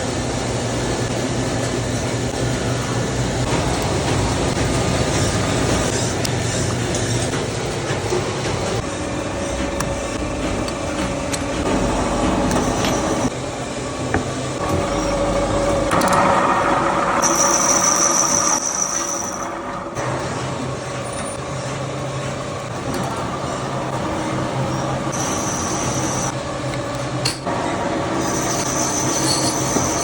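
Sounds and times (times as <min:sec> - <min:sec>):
factory machinery humming: 0:00.0 - 0:30.0
high whine: 0:09.3 - 0:26.4.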